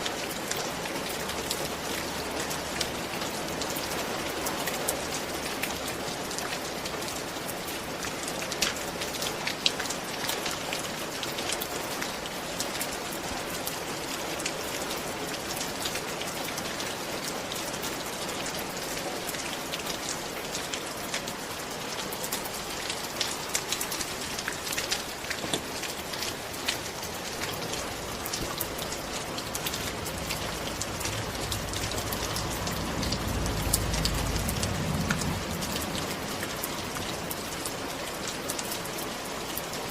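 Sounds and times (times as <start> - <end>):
steady rain with ticking drops: 0.0 - 39.9
low rumble: 28.1 - 37.6.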